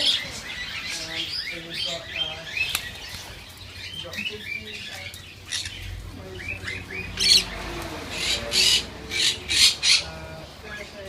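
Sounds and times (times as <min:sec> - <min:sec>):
parrot chirps: 0:05.4 - 0:05.9.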